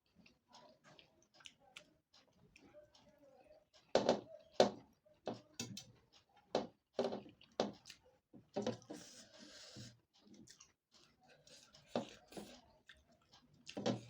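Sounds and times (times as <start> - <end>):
mouth clicks and smacks chewing: 0.0 - 3.9, 7.2 - 8.1, 9.0 - 14.0.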